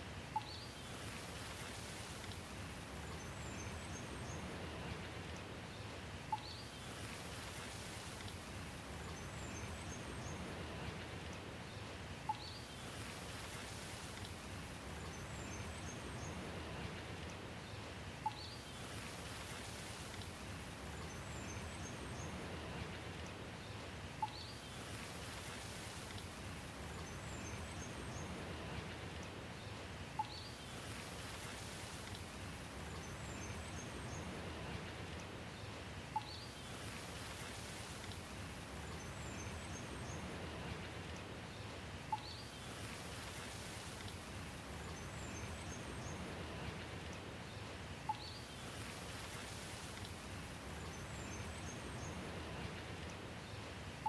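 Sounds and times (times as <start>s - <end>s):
steady rain: 0.0s - 54.0s
faint bird chirps: 0.3s - 1.1s, 12.3s - 13.0s, 18.2s - 19.0s, 24.2s - 24.9s, 30.2s - 30.7s, 36.1s - 37.0s, 42.1s - 42.7s, 48.1s - 48.9s.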